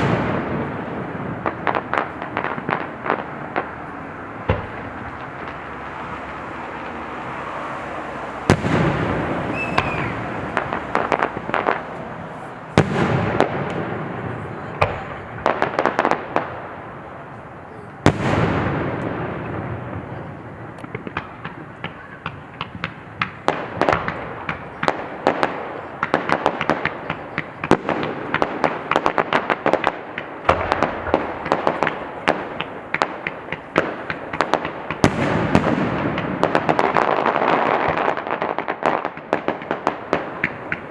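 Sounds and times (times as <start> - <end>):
rumbling echo: 0.0 - 27.1
firework crackling: 0.0 - 40.9
firework shells booming: 0.0 - 40.9.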